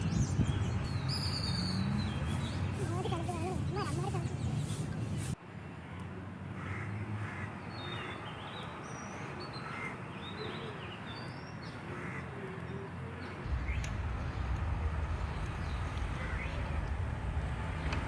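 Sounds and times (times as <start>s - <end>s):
birds chirping and calling: 0.0s - 5.4s, 6.6s - 17.0s
outdoor background noise: 0.0s - 18.0s
low rumble: 13.4s - 18.0s.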